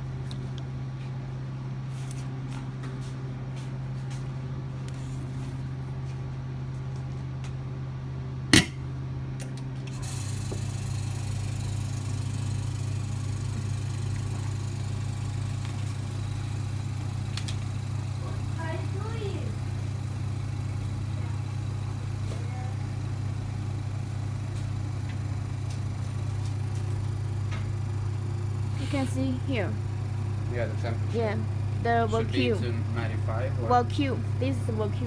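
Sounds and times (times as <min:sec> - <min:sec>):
laminating machine humming: 0:08.4 - 0:35.0.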